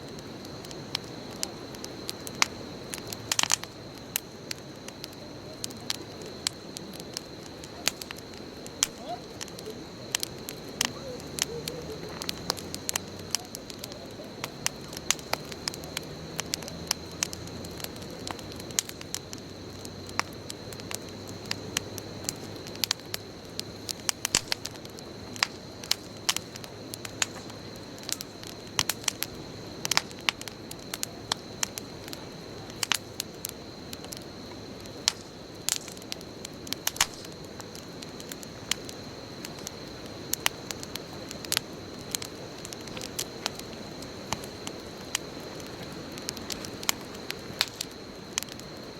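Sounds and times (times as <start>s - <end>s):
bonfire crackling and popping: 0.0s - 48.9s
low rush of flames: 0.0s - 48.9s.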